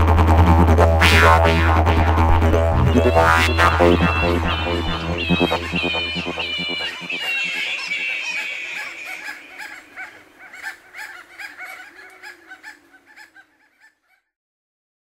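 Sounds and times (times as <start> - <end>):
birds calling in short calls: 3.0 - 14.2.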